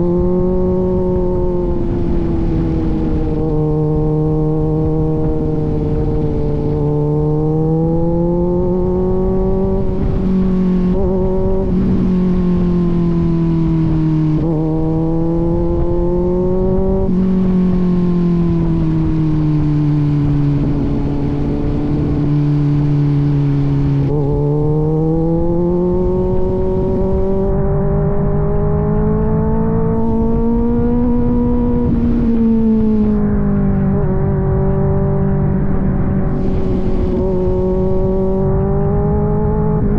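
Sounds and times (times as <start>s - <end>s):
motorcycle engine running: 0.0s - 39.9s
rush of noise: 35.5s - 39.9s.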